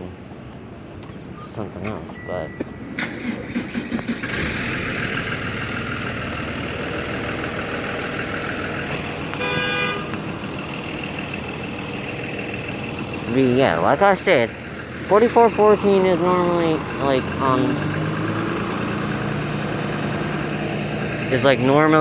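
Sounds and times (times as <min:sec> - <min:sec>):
bus engines running: 0:00.0 - 0:22.0
bus horn honk: 0:08.9 - 0:10.3.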